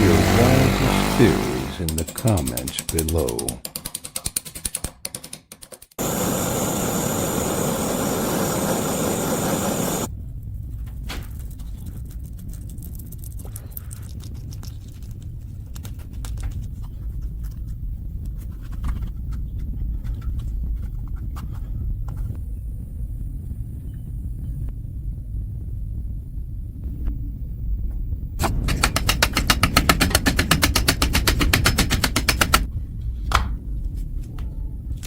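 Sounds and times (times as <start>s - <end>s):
fast rattle of clicks: 1.1s - 6.2s, 28.4s - 32.7s.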